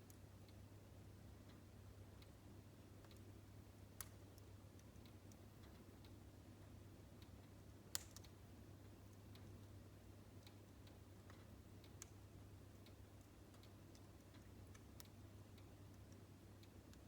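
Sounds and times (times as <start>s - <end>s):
wood fire crackling: 7.2s - 17.0s.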